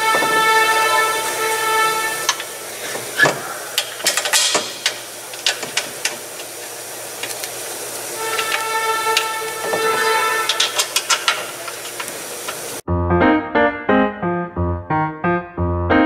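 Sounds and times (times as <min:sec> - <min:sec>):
background music with held chords: 0:00.0 - 0:02.5, 0:12.9 - 0:16.0
metal clicks and knocks from tools: 0:03.8 - 0:06.2, 0:10.5 - 0:12.6.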